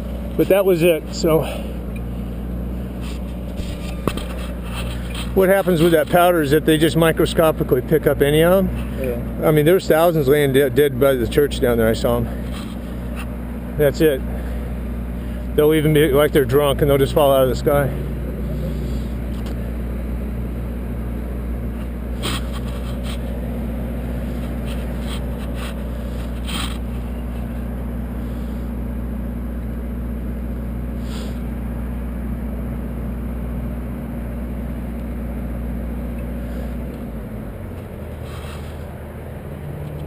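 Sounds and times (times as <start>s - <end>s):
engine idling: 0.0s - 40.0s.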